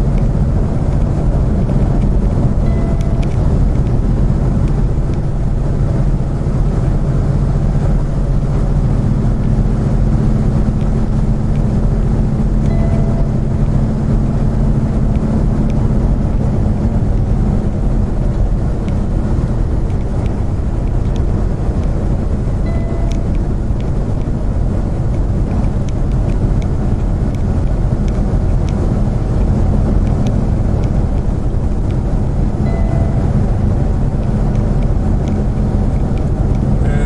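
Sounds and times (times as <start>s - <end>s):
car driving at highway speed: 0.0s - 37.0s
short faint beep: 2.6s - 3.4s, 12.7s - 13.4s, 22.7s - 23.3s, 32.6s - 33.3s.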